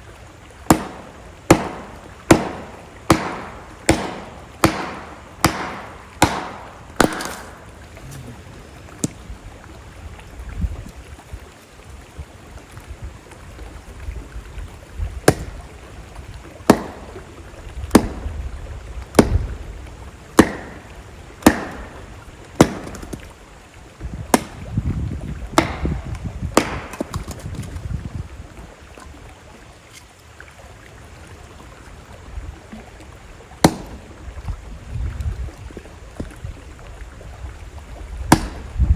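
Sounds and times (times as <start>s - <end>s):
campfire wood crackling: 0.0s - 9.5s, 15.3s - 23.5s, 33.6s - 34.6s
flowing water rushing: 0.0s - 38.9s.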